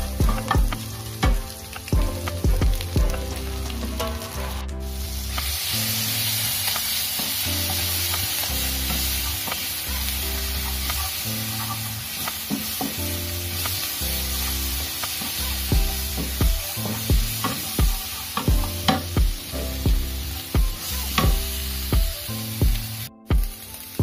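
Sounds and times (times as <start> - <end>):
fried rice sizzling in a pan: 0.0 - 24.0
spatula scraping a pan: 5.4 - 15.5.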